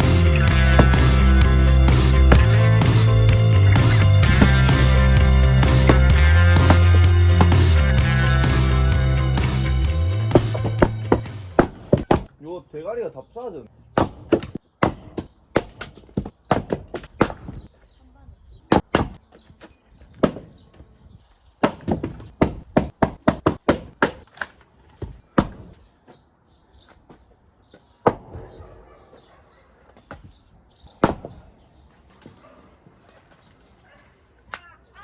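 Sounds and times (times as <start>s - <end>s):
axe splitting firewood: 0.0s - 12.4s, 14.0s - 17.8s, 18.7s - 20.8s, 21.6s - 25.9s, 28.0s - 28.4s, 31.0s - 33.3s.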